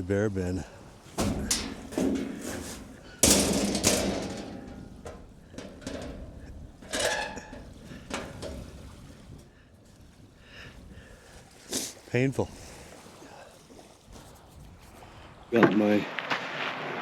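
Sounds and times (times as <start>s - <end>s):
metal locker clanking: 1.0s - 8.8s.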